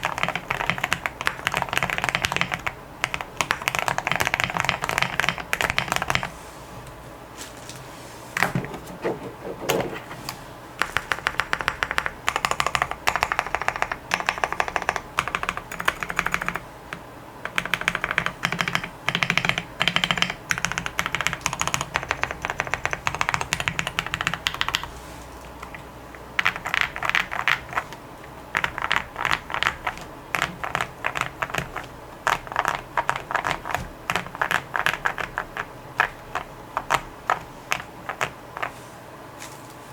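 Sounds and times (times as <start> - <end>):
typing on mechanical keyboard: 0.0 - 6.3, 10.8 - 16.6, 17.4 - 24.9, 26.4 - 38.7.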